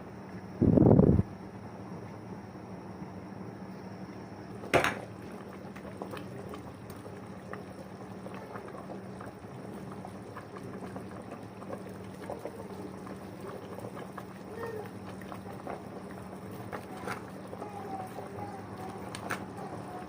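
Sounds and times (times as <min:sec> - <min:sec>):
steady low hum: 0:00.0 - 0:20.0
curry bubbling in pot: 0:04.5 - 0:20.0.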